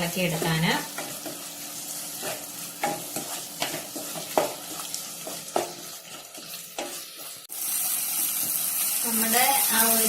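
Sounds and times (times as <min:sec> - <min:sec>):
onions sizzling in a pan: 0:00.0 - 0:10.0
spoon scraping a pan: 0:00.2 - 0:07.4.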